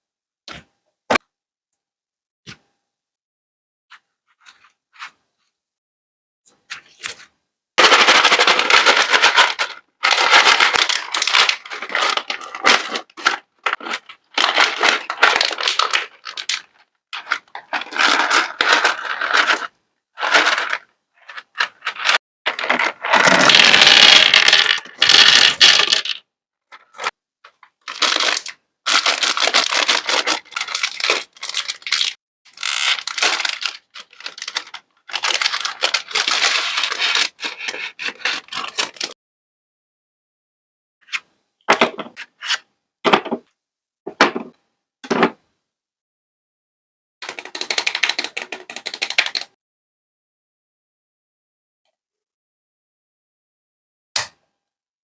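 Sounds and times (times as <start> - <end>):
plastic wrappers crinkling: 7.8 - 26.2, 26.8 - 39.1.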